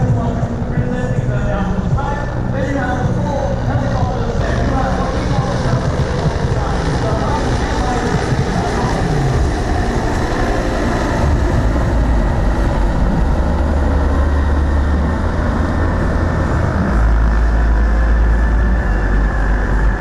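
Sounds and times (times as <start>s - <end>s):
helicopters flying past: 0.0s - 20.0s.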